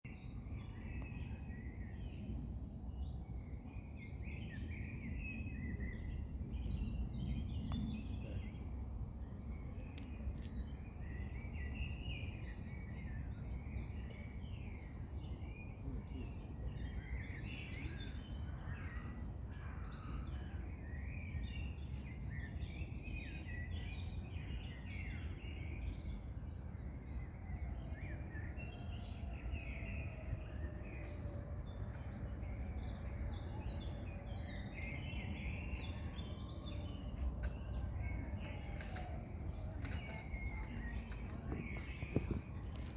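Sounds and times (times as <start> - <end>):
small birds chirping and trilling: 0.1 - 42.9
steady low rumble: 29.1 - 42.9.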